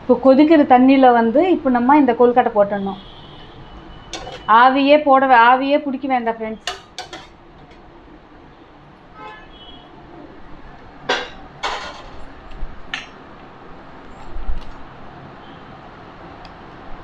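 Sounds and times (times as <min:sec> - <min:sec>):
utensils clinking on steel pot: 0:04.1 - 0:04.5, 0:06.6 - 0:07.9, 0:11.1 - 0:12.3.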